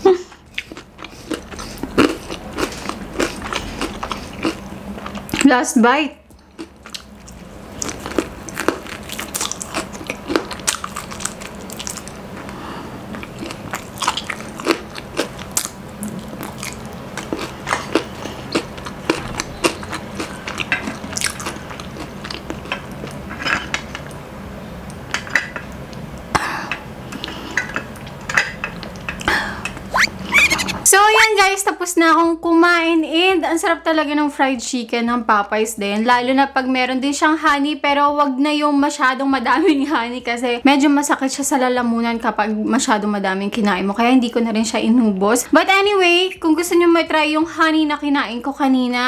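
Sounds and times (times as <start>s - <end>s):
chewing crunchy food: 0.3s - 5.4s, 6.3s - 24.2s
wet mouth clicks: 29.8s - 30.8s.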